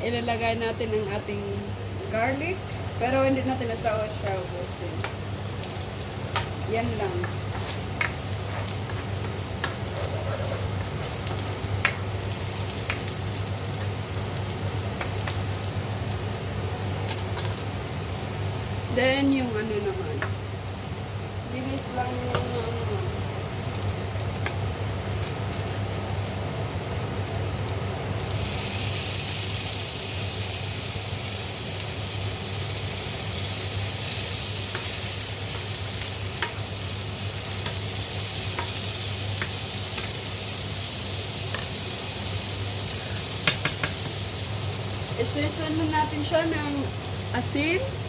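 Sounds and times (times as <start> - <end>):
butter and garlic sizzling in pan: 0.1 - 48.0
utensil clicking against pan: 43.4 - 44.2.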